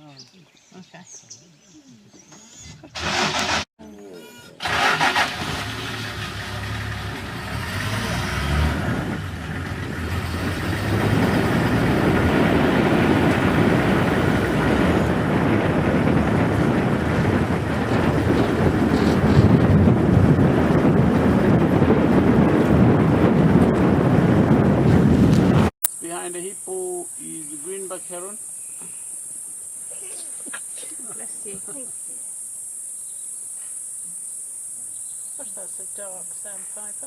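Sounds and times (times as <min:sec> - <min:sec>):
vehicle engine starting and running: 0:02.8 - 0:03.7, 0:04.5 - 0:25.8
wind on microphone: 0:08.8 - 0:25.8.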